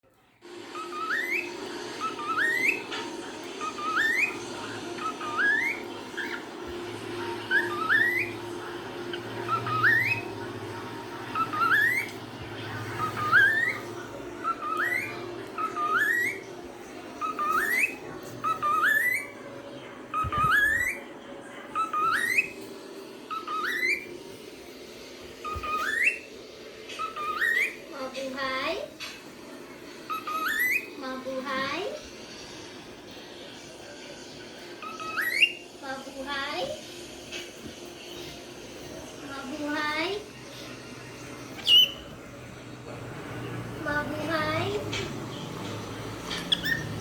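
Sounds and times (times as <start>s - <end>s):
cockatiel whistling: 0.7s - 12.2s, 12.8s - 16.5s, 17.2s - 19.4s, 20.1s - 21.0s, 21.8s - 22.6s, 23.3s - 24.2s, 25.4s - 27.8s, 30.1s - 31.7s, 34.8s - 35.7s, 41.5s - 42.2s, 44.4s - 47.0s.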